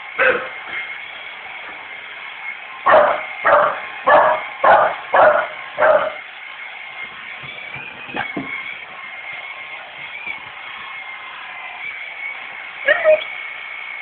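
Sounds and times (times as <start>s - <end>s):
steady high whine: 0.0s - 14.0s
dog barking: 0.2s - 0.5s, 2.9s - 6.2s.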